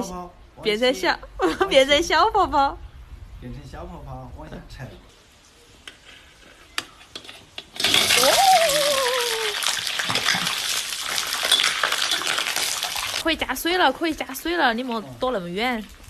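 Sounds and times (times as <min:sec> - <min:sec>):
loud sizzle in hot sugar: 0:05.1 - 0:16.0
short falling vocal cry: 0:08.1 - 0:09.6.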